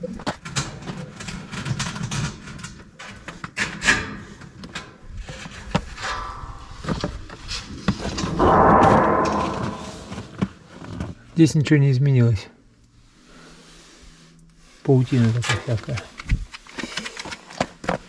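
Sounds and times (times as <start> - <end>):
scraping noise: 6.0 - 10.4.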